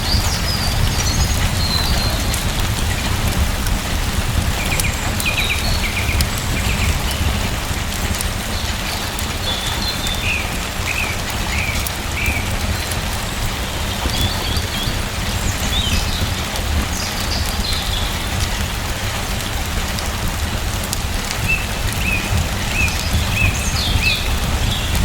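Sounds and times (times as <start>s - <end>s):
faint ticks of raindrops: 0.0s - 25.0s
steady rain falling: 0.0s - 25.0s.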